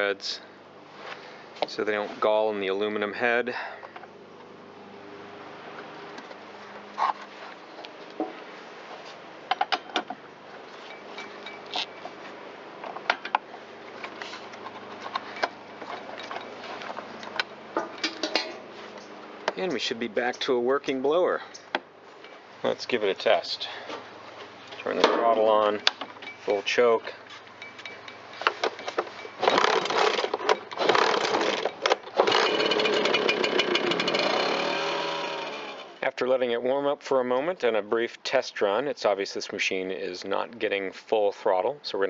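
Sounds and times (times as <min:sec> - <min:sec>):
blower engine pull-started: 0:29.2 - 0:36.0.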